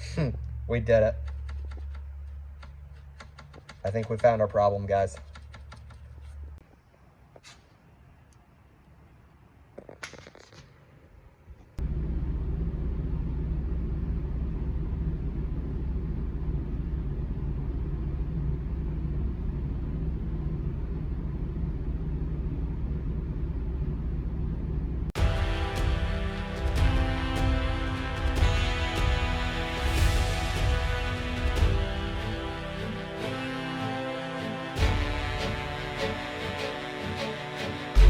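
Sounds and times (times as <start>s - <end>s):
music: 25.2s - 38.0s.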